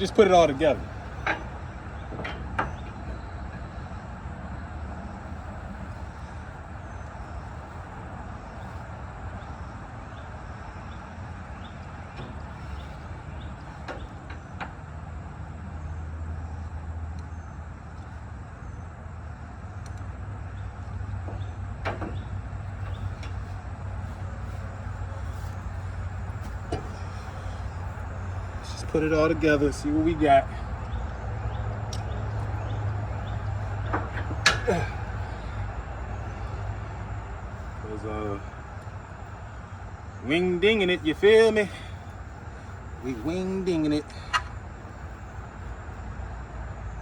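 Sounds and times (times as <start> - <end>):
motor vehicle rumble: 0.0 - 47.0.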